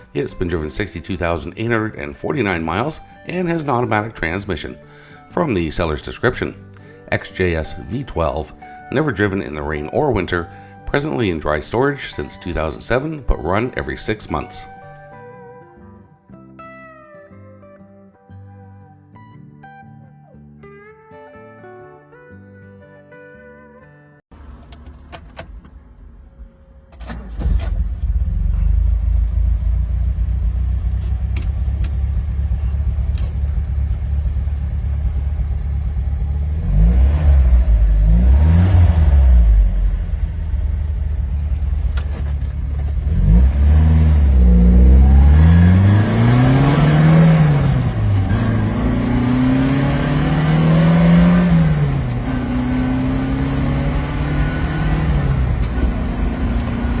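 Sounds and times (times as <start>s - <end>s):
car engine running: 27.1s - 57.0s.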